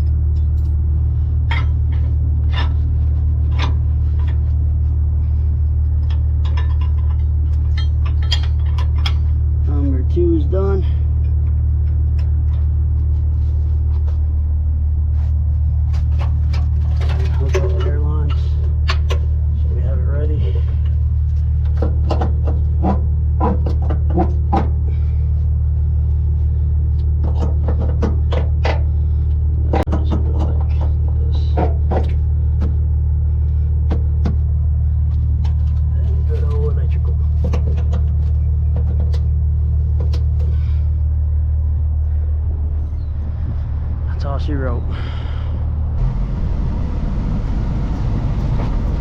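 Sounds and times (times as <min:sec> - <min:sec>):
diesel truck engine idling: 0:00.0 - 0:29.8, 0:30.6 - 0:49.0
metallic knocks and scrapes: 0:01.4 - 0:04.8, 0:05.9 - 0:09.4
short knocks and clanks: 0:21.6 - 0:25.0.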